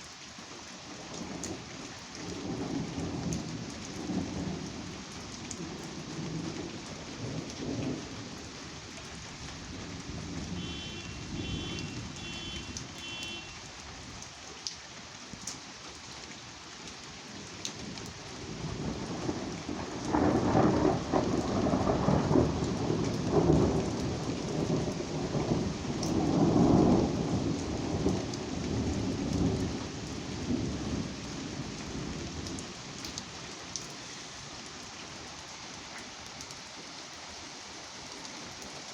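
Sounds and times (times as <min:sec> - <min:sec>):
steady rain falling: 0:00.0 - 0:38.9
rolling thunder: 0:09.8 - 0:12.9, 0:18.5 - 0:32.6.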